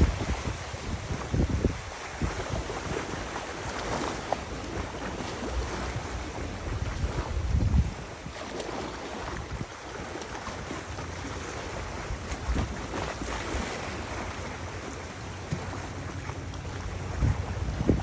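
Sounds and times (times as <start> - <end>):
river water rushing: 0.0 - 18.0
wind buffeting microphone: 0.0 - 18.0
wind rushing: 6.6 - 8.4.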